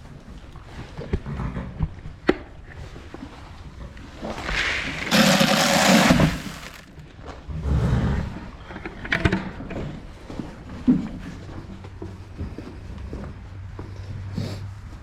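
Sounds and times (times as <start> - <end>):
grain pouring into feeder: 4.5 - 6.9.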